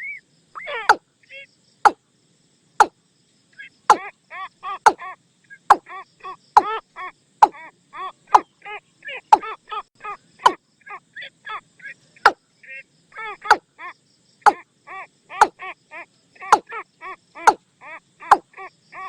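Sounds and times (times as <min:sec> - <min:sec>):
bird calling hollow notes: 0:03.8 - 0:04.1, 0:04.7 - 0:05.9, 0:08.3 - 0:08.6, 0:09.2 - 0:09.6, 0:14.4 - 0:14.6, 0:15.3 - 0:15.6, 0:16.4 - 0:16.8, 0:17.4 - 0:17.6.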